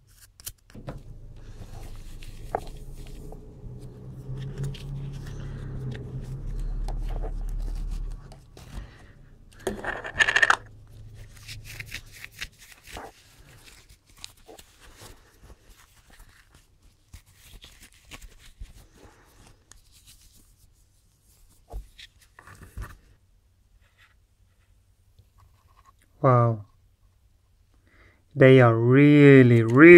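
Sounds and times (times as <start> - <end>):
low hum: 0.8 - 13.5.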